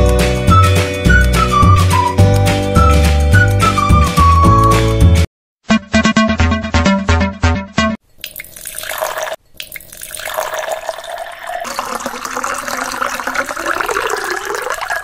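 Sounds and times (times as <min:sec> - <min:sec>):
milk pouring into a pot: 0:08.2 - 0:15.0.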